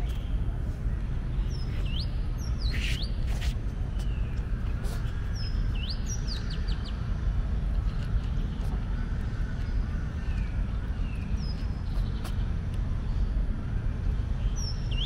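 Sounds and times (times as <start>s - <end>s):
birds whistling calls: 1.4s - 3.2s.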